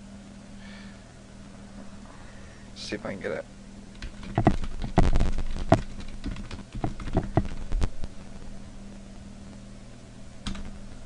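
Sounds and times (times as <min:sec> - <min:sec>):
low electrical hum: 0:00.0 - 0:11.0
keyboard keystrokes: 0:04.0 - 0:07.6.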